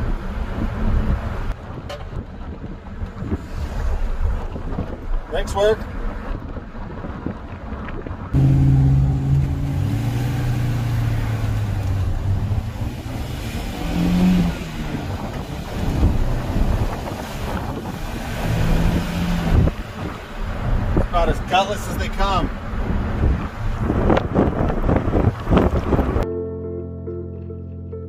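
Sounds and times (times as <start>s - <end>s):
road and wind noise: 0.0s - 26.3s
car engine accelerating: 8.3s - 21.1s.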